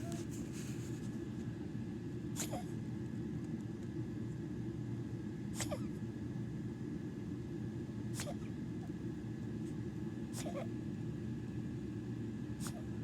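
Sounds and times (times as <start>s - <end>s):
dog coughing: 2.4s - 2.7s, 5.6s - 6.0s, 8.1s - 8.6s, 10.3s - 10.8s, 12.6s - 13.0s.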